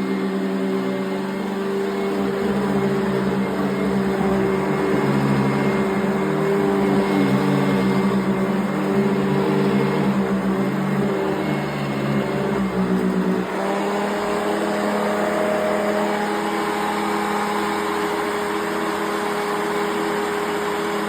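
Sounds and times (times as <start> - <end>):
vacuum cleaner motor whirring: 0.0 - 21.0.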